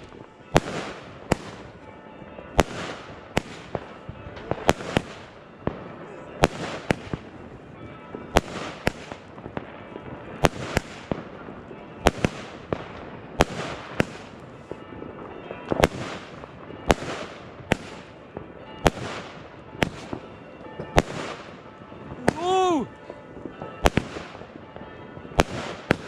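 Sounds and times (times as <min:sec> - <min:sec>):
firework bangs: 0:08.1 - 0:26.0.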